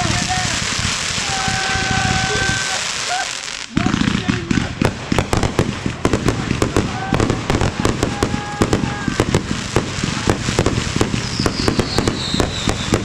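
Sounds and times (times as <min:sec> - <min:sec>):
fireworks bangs and crackles: 0:00.0 - 0:13.0
faint falling whistle: 0:11.3 - 0:13.0.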